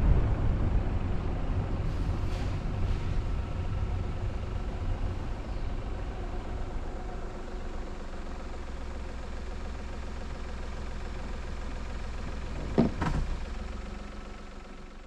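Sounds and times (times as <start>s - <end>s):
car engine running: 0.0s - 15.0s
sharp clunk: 12.5s - 13.4s.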